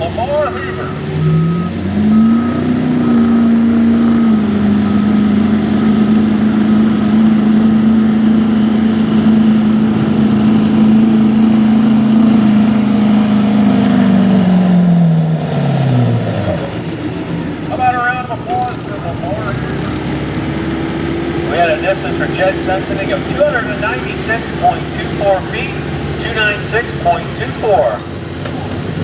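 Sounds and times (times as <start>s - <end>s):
pickup truck engine at full throttle: 0.0s - 29.0s.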